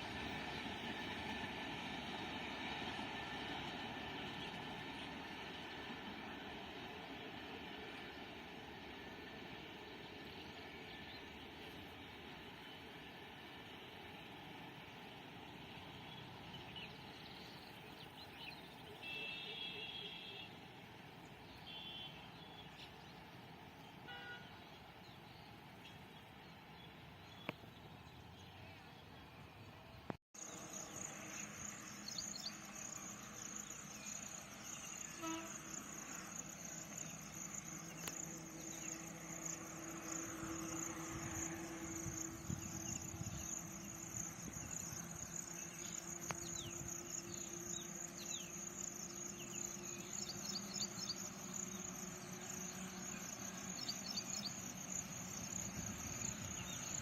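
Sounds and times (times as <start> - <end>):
insects chirring: 30.4 - 57.0.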